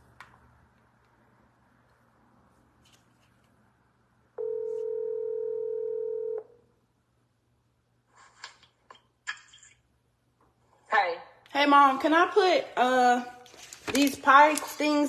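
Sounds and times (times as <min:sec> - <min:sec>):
phone ringback tone: 0:04.4 - 0:06.5.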